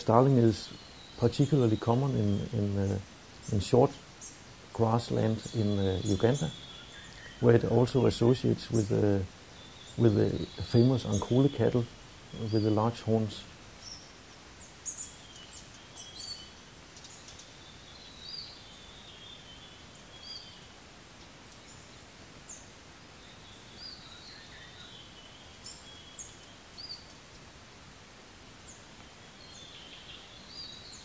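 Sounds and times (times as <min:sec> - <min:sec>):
birds chirping and whistling: 0:00.0 - 0:20.7, 0:23.2 - 0:27.2
outdoor background hiss: 0:00.0 - 0:31.0.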